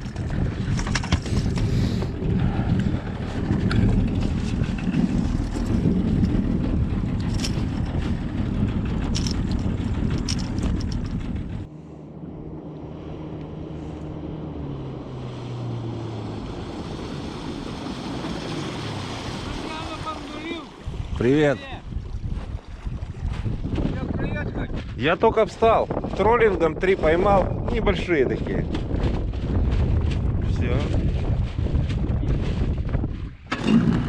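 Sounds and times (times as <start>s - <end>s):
motorboat engine: 0.0s - 34.0s
wind buffeting microphone: 0.0s - 34.0s.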